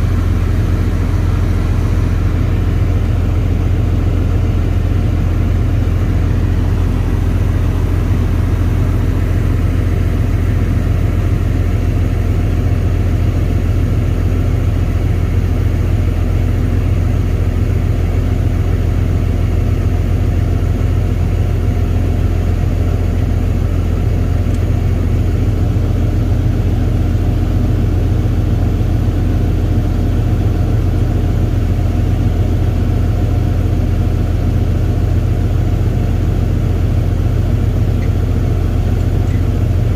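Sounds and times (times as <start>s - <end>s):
tractor engine droning: 0.0s - 39.9s.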